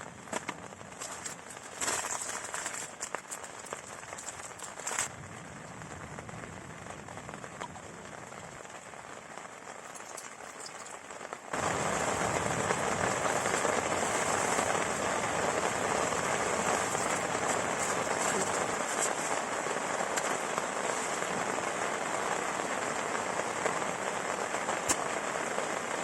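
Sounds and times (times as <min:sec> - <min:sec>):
faint crackles: 0:00.0 - 0:26.0
heavy rain falling: 0:00.0 - 0:26.0.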